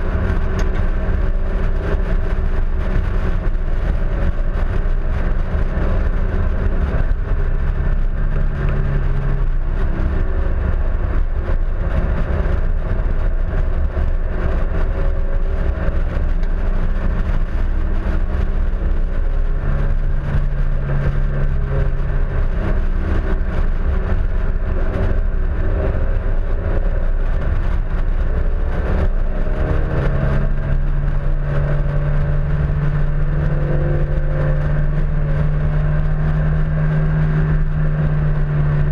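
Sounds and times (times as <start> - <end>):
car engine revving: 0.0 - 38.9
wind and road noise rumble: 0.0 - 38.9.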